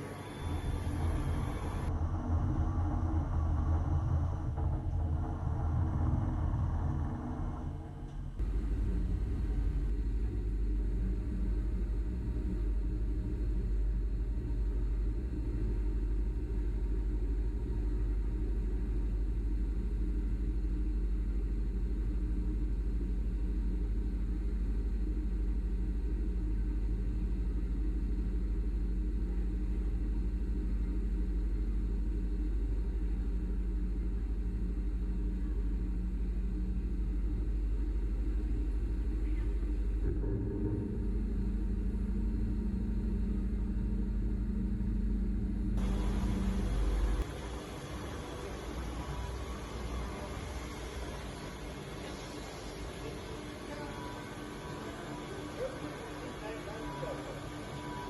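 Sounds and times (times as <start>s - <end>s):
pulsing machine hum: 0.0s - 58.0s
fan-like hiss: 45.8s - 58.0s.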